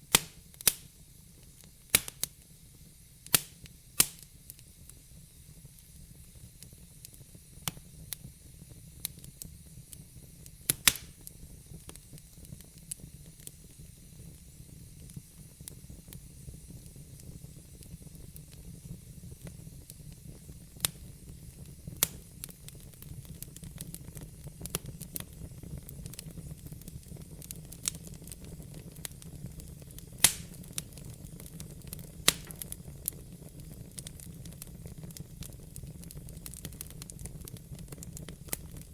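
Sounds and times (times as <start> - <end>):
fire pops and snaps: 0.0 - 2.6, 3.2 - 38.9
wood fire crackling and hissing: 0.0 - 38.9.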